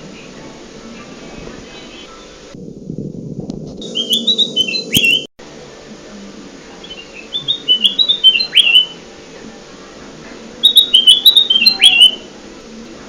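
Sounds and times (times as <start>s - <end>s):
recorded bird song: 0.0s - 2.6s, 3.8s - 5.3s, 6.6s - 9.6s, 10.4s - 12.9s
low steady hum: 0.0s - 13.0s.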